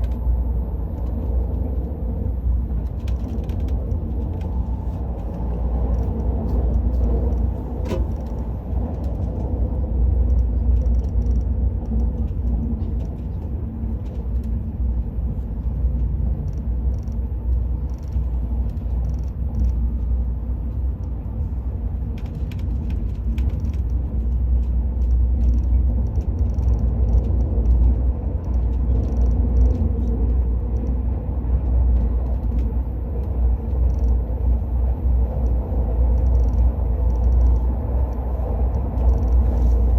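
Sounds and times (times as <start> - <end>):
train cabin deep rumble: 0.0 - 39.9
light ticks: 15.6 - 21.2, 22.2 - 31.0, 31.6 - 34.3, 35.4 - 39.9.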